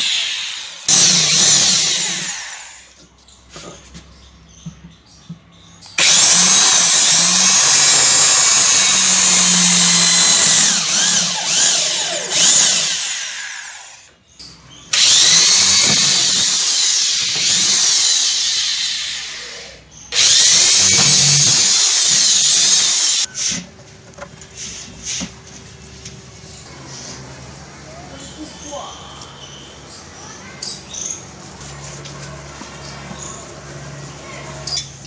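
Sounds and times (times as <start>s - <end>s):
power tool whirring: 0.0s - 3.0s, 6.0s - 14.1s, 14.9s - 23.6s.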